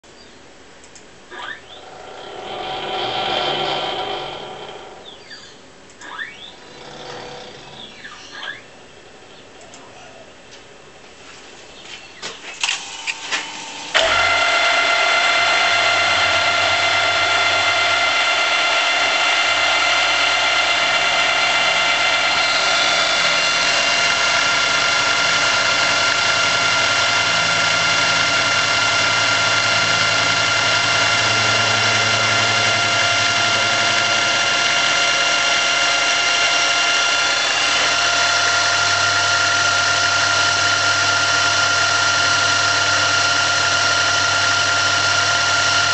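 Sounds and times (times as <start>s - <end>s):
lower hum: 0.9s - 10.5s, 13.5s - 45.7s
milling spindle high whine: 1.2s - 10.3s, 12.0s - 45.9s.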